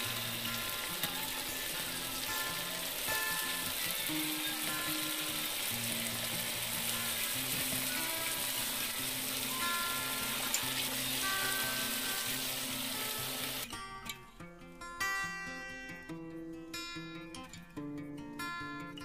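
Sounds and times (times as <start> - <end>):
shrimp sizzling in a pan: 0.0 - 13.6
background music with held notes: 0.0 - 19.0.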